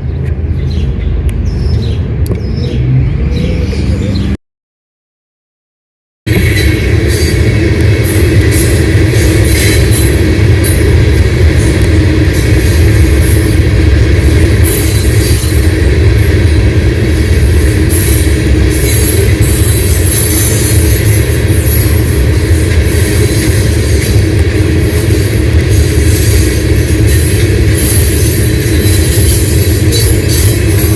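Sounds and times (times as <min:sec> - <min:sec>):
train wheels rumbling on rails: 0:00.0 - 0:04.4, 0:06.3 - 0:30.9.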